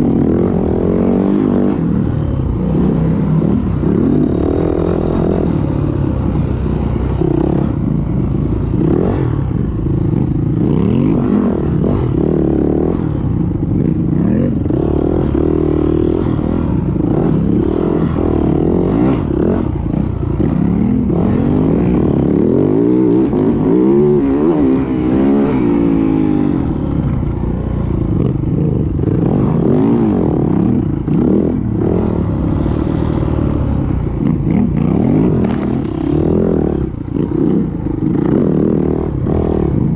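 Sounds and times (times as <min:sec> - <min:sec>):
dirt bike engine revving: 0:00.0 - 0:39.9
clatter: 0:32.6 - 0:39.9.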